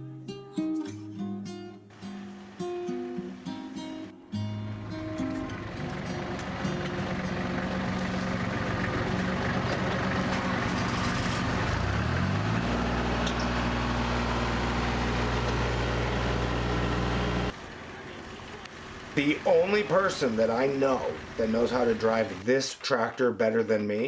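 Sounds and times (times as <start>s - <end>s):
engine running and revving: 4.8s - 22.4s.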